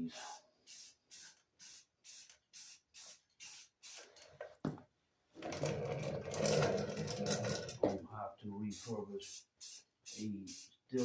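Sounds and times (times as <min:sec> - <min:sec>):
spray paint can hissing: 0:00.2 - 0:04.1, 0:08.7 - 0:10.8.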